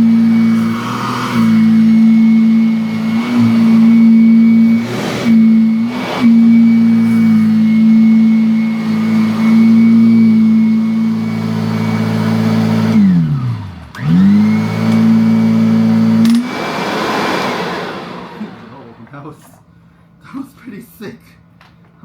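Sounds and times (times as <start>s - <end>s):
upright vacuum running: 0.0s - 19.6s.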